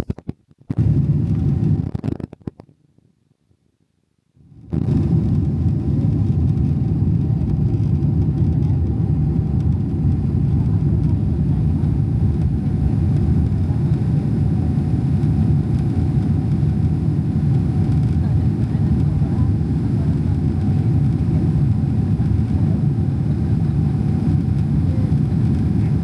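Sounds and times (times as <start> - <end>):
airplane cabin rumble: 0.7 - 2.3, 4.5 - 26.0.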